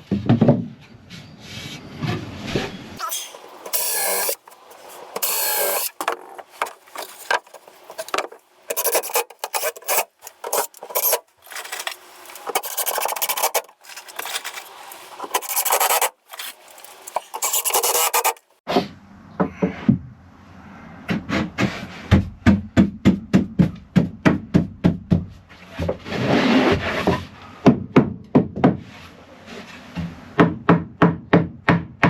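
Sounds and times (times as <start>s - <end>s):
abrasive tool scraping wood: 3.0s - 18.6s.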